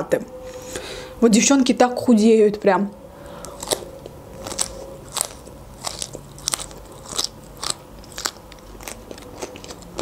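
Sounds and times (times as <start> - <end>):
chewing crunchy raw carrot: 3.4 - 10.0.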